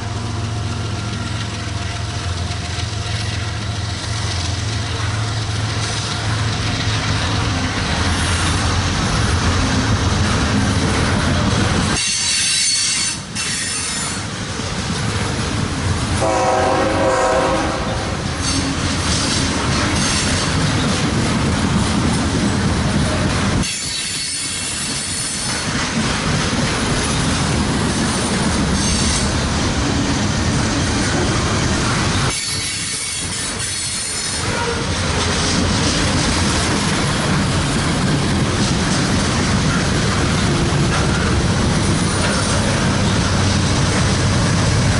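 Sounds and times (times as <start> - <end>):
train wheels on rails: 0.0 - 44.9
train horn blast: 16.2 - 18.7.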